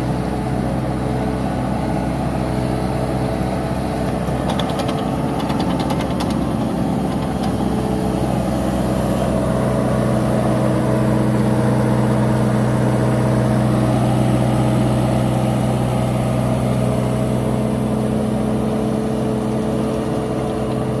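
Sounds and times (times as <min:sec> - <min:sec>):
diesel engine running: 0:00.0 - 0:21.0
rapid clicks: 0:04.1 - 0:07.6.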